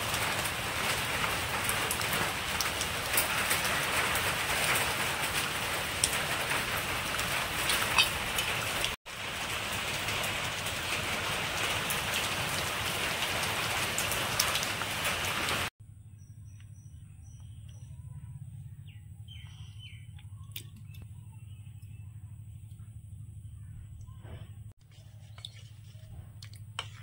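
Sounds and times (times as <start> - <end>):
oil popping: 4.9 - 9.0, 24.8 - 27.0
food sizzling in hot oil: 7.7 - 8.6.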